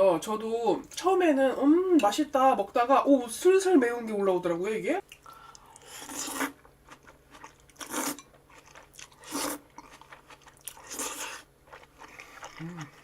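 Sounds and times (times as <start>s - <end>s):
person biting and chewing: 5.8s - 13.0s.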